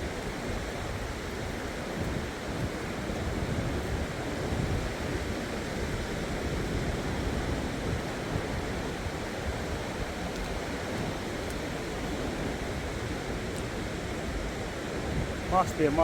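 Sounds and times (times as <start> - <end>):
sea surf breaking on shore: 0.0 - 16.0
wind on microphone: 0.0 - 16.0.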